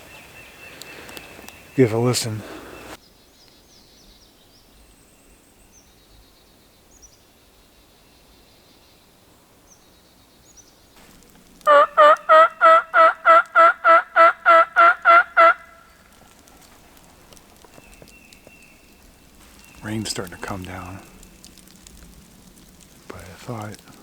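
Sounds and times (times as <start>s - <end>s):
faint songbird chirps: 0.0s - 14.0s, 14.8s - 21.6s
turkey call yelping: 11.6s - 17.3s.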